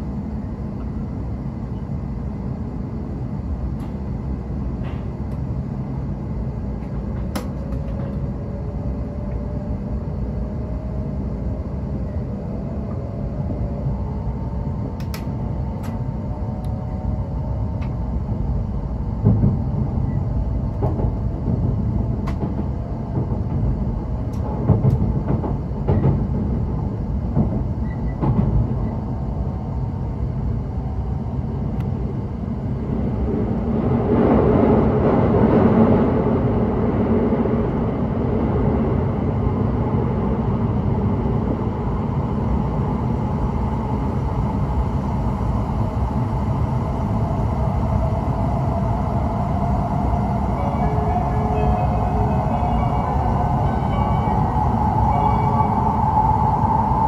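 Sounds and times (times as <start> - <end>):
train cabin rumble: 0.0 - 57.0
faint whine: 40.4 - 57.0.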